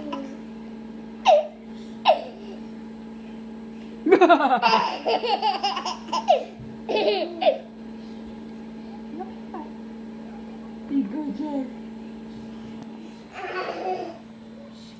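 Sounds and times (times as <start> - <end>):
baby laughing: 4.6 - 7.6, 13.4 - 14.2.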